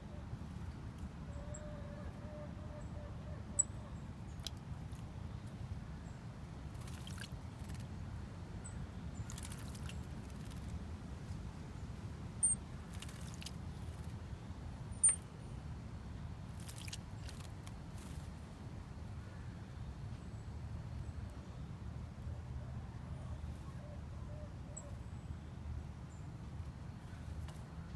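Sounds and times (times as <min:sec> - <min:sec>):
songbirds chirping: 0:00.0 - 0:27.9.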